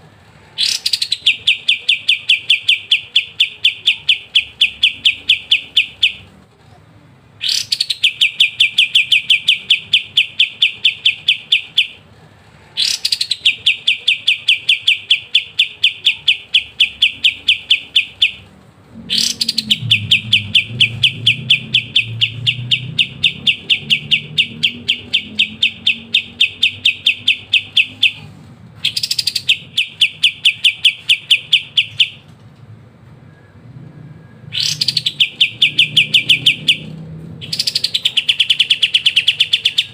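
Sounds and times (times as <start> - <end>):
songbird rapid trill: 7.4 - 12.0, 12.8 - 18.4, 19.1 - 28.3, 28.9 - 32.2, 34.5 - 39.9.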